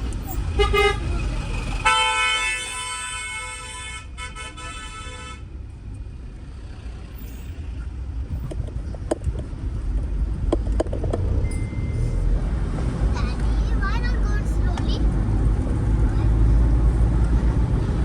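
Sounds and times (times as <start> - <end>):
engine and road rumble: 0.0 - 18.0
vehicle horn: 0.4 - 1.1, 1.7 - 5.5.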